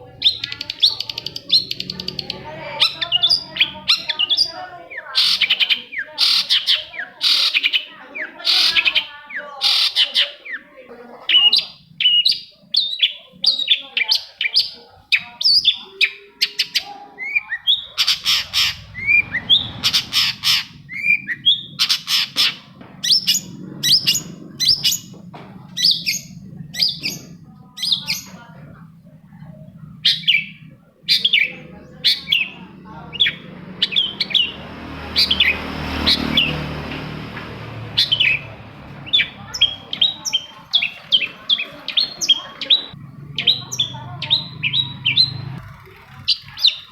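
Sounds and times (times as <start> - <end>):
low rumble: 17.8 - 35.0
bird singing sharp chirps: 38.0 - 45.6.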